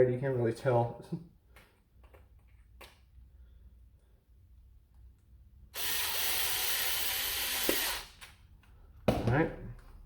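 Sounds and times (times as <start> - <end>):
electric drill driving screw: 5.7 - 8.3.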